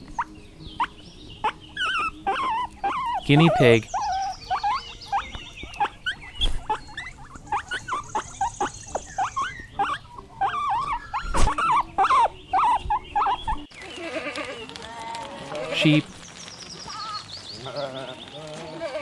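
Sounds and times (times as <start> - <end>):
guinea pigs squeaking: 0.0 - 13.7.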